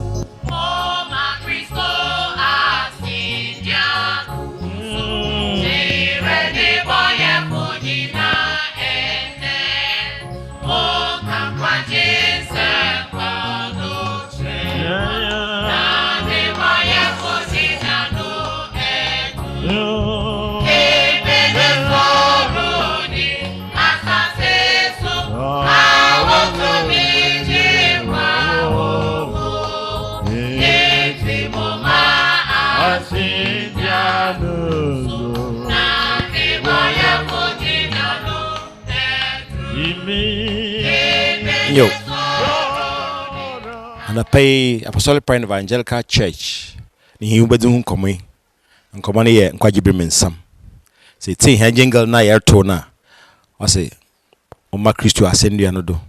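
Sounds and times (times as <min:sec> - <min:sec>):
instrumental backing: 0:00.0 - 0:44.6
gospel choir singing: 0:00.0 - 0:44.8.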